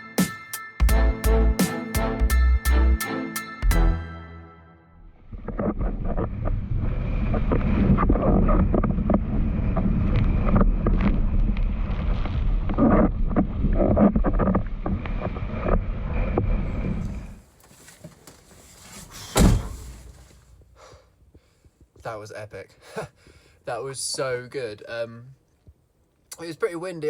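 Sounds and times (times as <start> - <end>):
wind buffeting microphone: 5.7 - 17.4.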